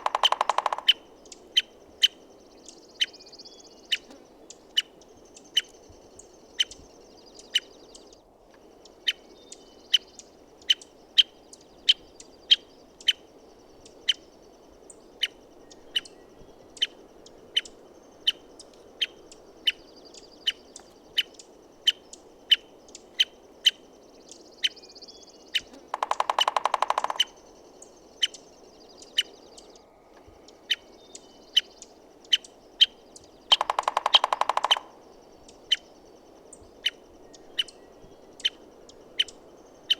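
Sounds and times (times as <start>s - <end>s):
woodpecker drumming: 0.0s - 3.1s, 25.5s - 29.6s, 31.5s - 39.9s
background hiss: 0.0s - 39.9s
faint birdsong: 0.0s - 39.9s
woodpecker call notes: 0.0s - 39.9s.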